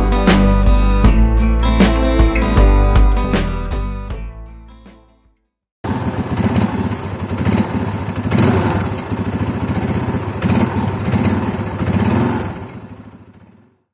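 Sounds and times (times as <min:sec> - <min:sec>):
small engine running: 0:05.8 - 0:13.9.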